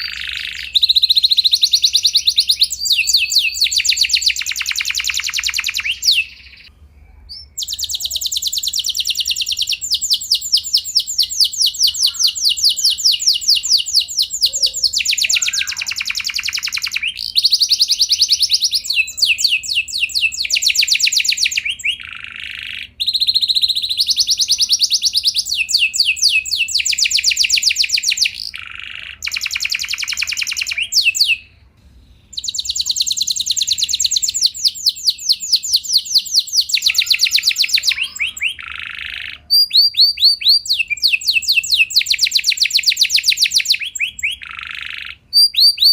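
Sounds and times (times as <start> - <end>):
canary singing trilled rolls: 0.0 - 45.9.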